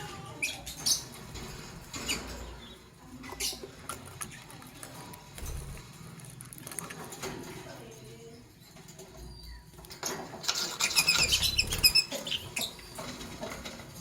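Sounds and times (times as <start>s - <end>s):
lovebirds chirping: 0.2s - 4.8s, 10.6s - 13.4s.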